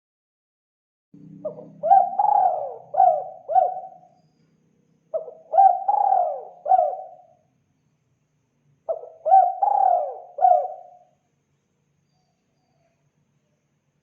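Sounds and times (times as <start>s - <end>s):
dove cooing: 1.4s - 4.1s, 5.1s - 7.4s, 8.9s - 11.1s.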